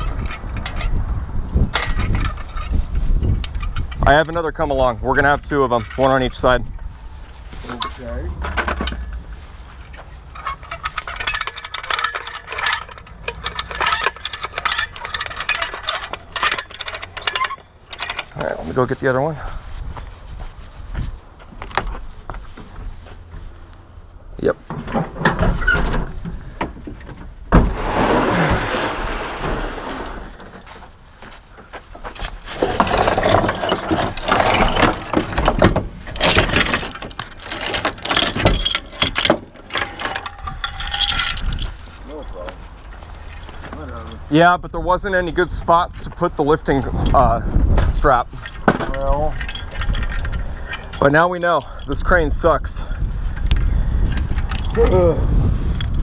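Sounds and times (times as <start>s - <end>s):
metal clanking and rattling: 0.0s - 1.0s, 1.6s - 4.4s, 7.6s - 18.8s, 24.6s - 30.8s, 32.3s - 43.5s, 47.0s - 52.5s
metal chain and hooks clinking: 9.8s - 18.5s, 32.7s - 42.5s, 48.4s - 52.3s.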